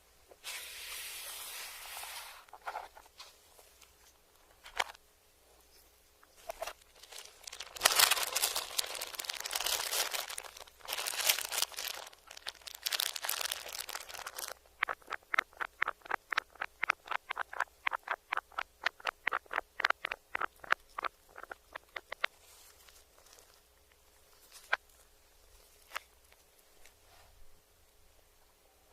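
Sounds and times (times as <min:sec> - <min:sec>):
crinkling and crunching: 0:06.2 - 0:27.0
crunchy chewing clicks: 0:06.4 - 0:22.3.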